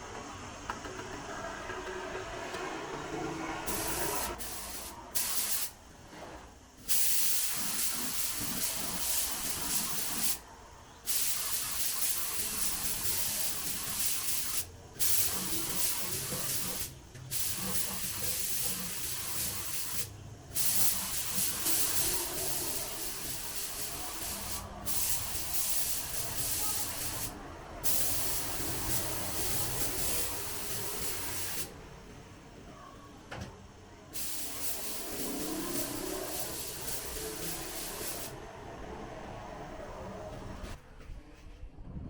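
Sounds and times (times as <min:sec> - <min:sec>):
spray paint hissing: 0:03.6 - 0:05.9, 0:06.7 - 0:10.4, 0:11.0 - 0:31.8, 0:34.1 - 0:38.4.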